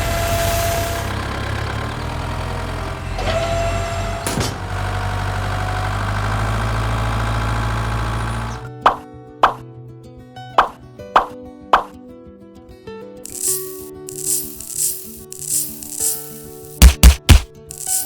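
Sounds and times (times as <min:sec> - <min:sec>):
machine engine running: 0:13.3 - 0:18.0
short knock: 0:16.8 - 0:17.7.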